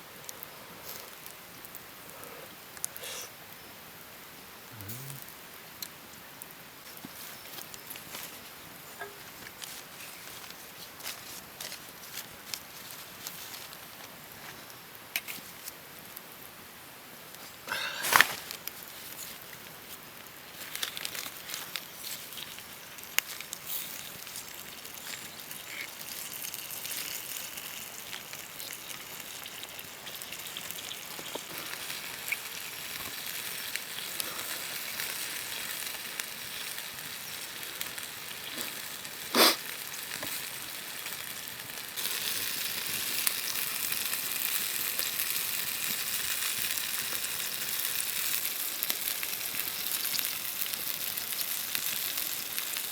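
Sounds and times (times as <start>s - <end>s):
food sizzling in a pan: 17.6s - 52.9s.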